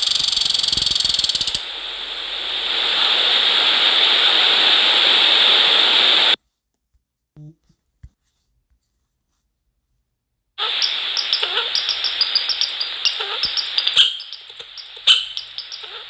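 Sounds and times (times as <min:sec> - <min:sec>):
hiss: 0:00.0 - 0:06.4, 0:10.6 - 0:16.0.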